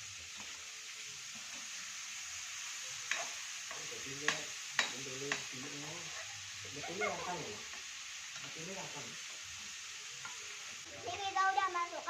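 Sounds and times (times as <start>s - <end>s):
beans sizzling in hot oil: 0.0s - 12.0s
spatula clicking against pan: 3.1s - 5.5s.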